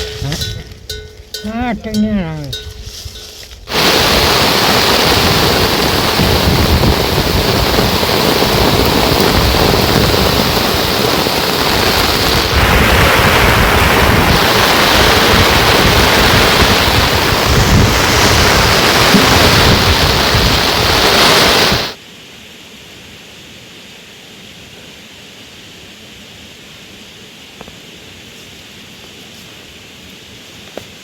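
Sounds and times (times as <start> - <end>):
loud rushing noise: 12.4 - 22.0.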